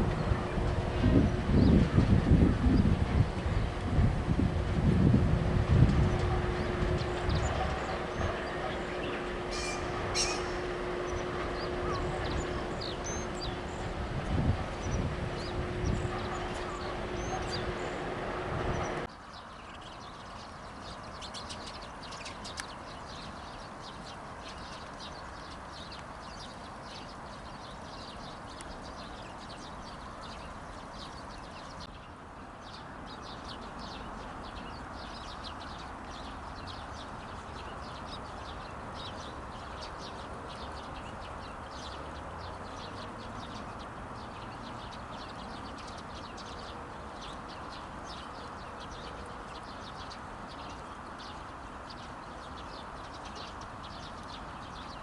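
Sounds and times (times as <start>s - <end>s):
loud low hum: 0.0s - 19.1s
low open-air rumble: 0.0s - 19.8s
small birds chirping: 5.5s - 55.0s.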